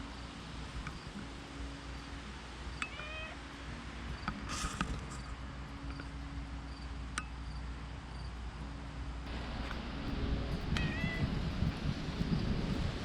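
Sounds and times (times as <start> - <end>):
cat meowing: 2.8 - 3.4, 10.7 - 11.3.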